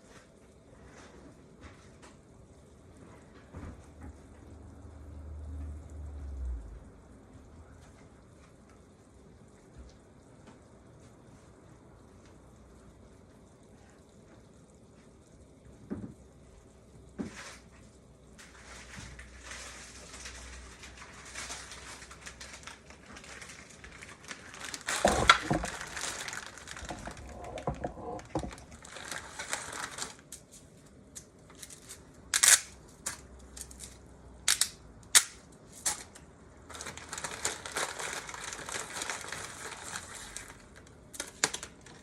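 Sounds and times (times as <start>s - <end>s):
soup bubbling in a pot: 0.0s - 30.1s.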